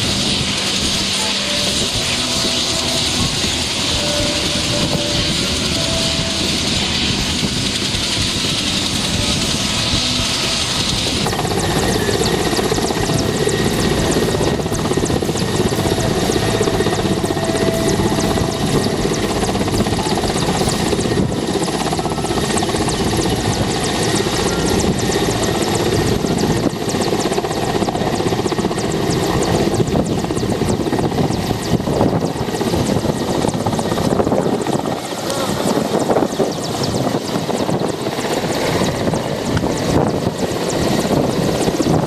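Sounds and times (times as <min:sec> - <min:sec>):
helicopter rotor beating: 0:00.0 - 0:42.0.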